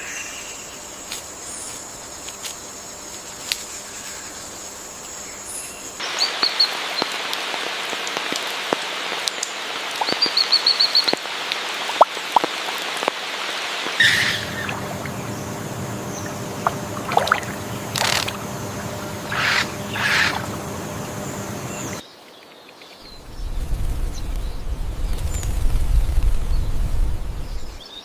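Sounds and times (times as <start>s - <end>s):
steady hiss like rain: 0.0s - 28.0s
birds calling: 13.9s - 22.0s
low steady hum: 14.0s - 22.0s, 23.1s - 27.8s
rapid high bird notes: 14.0s - 22.0s.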